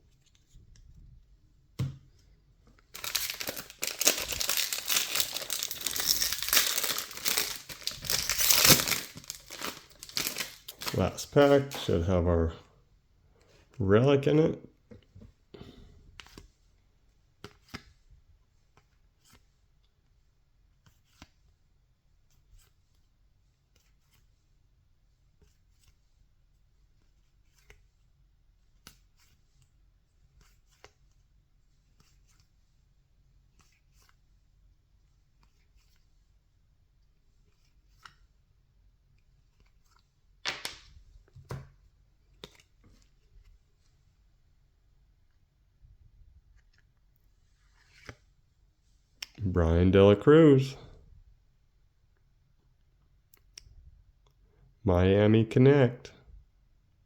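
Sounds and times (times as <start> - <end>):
cards clicking and rubbing: 2.9 - 11.9
pack wrapper rustling: 2.9 - 11.9.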